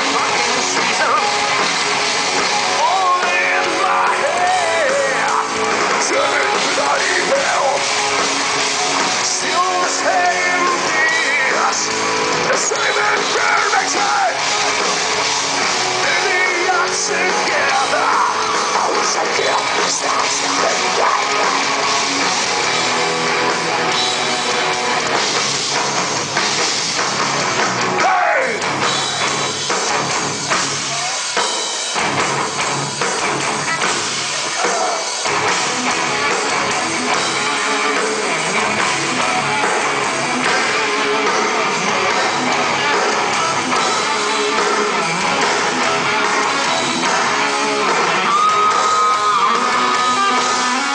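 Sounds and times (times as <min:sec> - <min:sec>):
heavy metal band playing live: 0:00.0 - 0:50.9
person singing: 0:02.7 - 0:07.8, 0:09.2 - 0:14.4, 0:16.0 - 0:21.6.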